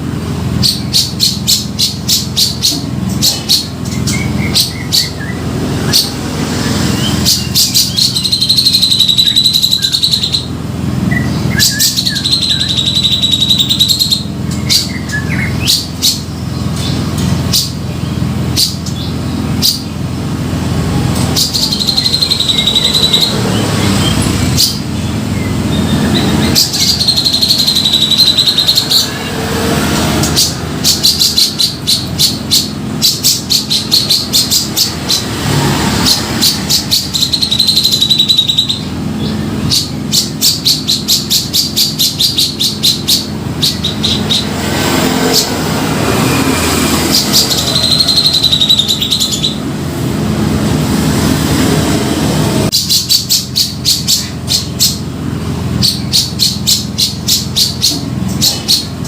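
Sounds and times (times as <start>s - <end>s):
bird buzzy chattering calls: 0.0s - 59.0s.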